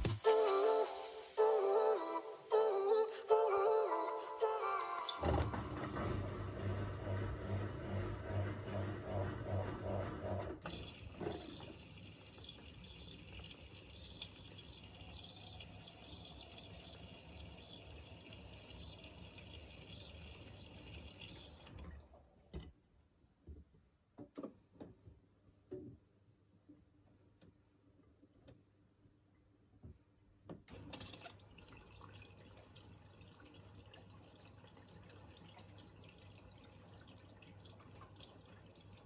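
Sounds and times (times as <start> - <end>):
washing machine hum: 5.2 - 22.8, 30.7 - 39.0
water flowing in: 10.6 - 22.2, 31.0 - 39.0.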